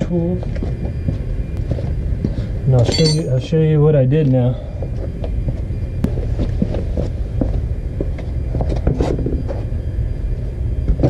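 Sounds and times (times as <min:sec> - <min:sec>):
hand tools clicking and knocking: 0:02.8 - 0:03.4.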